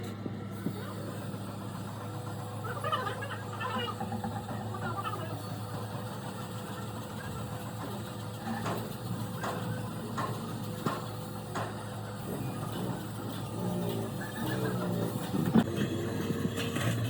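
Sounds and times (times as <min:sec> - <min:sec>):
faint voices: 0:00.5 - 0:10.7.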